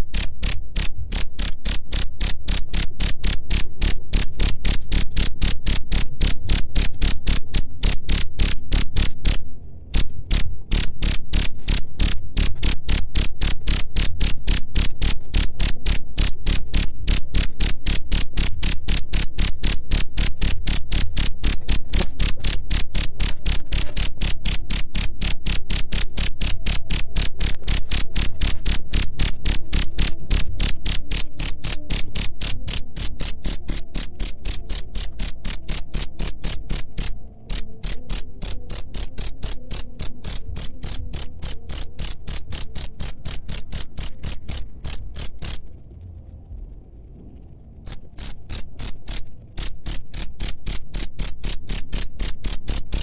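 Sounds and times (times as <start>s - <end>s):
cricket chirping: 0.0s - 53.0s.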